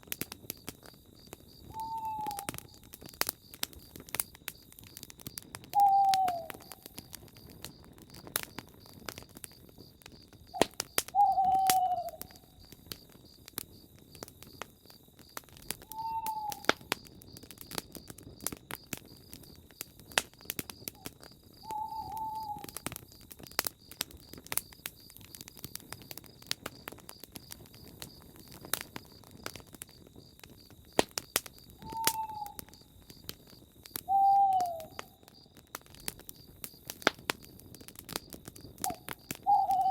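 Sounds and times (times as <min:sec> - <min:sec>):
campfire crackling and popping: 0:00.0 - 0:39.9
owl hooting: 0:01.7 - 0:02.6, 0:05.8 - 0:06.8, 0:10.6 - 0:12.5, 0:15.9 - 0:16.7, 0:21.6 - 0:22.8, 0:31.8 - 0:32.6, 0:34.1 - 0:35.2, 0:38.8 - 0:39.9.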